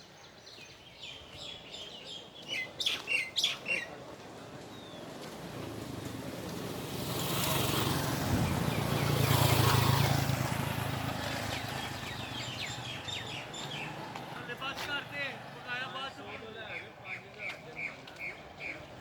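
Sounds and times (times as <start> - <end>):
vehicle driving past: 5.0 - 16.0.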